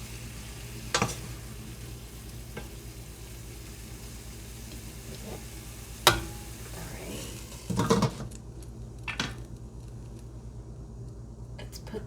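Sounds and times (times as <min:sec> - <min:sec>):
pan sizzling: 0:00.0 - 0:11.0
stovetop low hum: 0:00.0 - 0:12.0
cookware clanking: 0:00.9 - 0:01.4, 0:06.1 - 0:06.6, 0:07.6 - 0:08.3.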